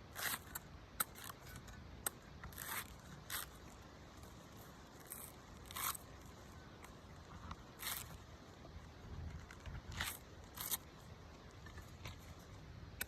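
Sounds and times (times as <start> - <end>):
knife scraping coconut husk: 0.0 - 8.3.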